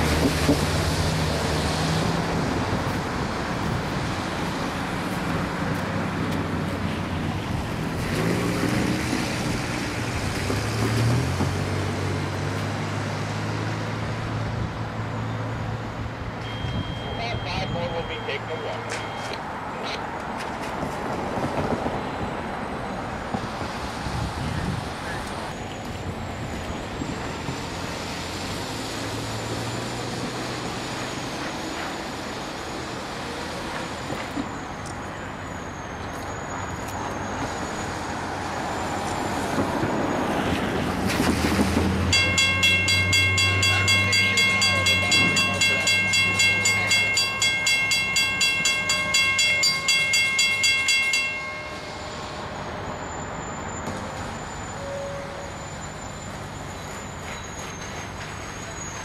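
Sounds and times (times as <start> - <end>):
diesel locomotive engines humming: 0.0 - 20.3, 21.7 - 59.0
bell ringing: 42.1 - 52.8.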